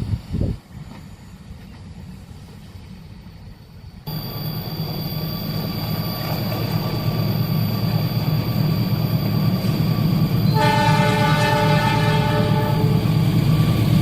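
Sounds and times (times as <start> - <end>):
train rumble: 0.0 - 14.0
thin high tone: 4.1 - 11.0.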